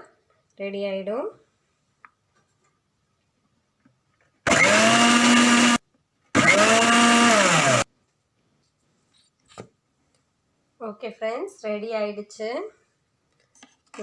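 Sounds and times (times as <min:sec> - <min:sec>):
mixer grinder motor whirring: 0:04.4 - 0:07.9.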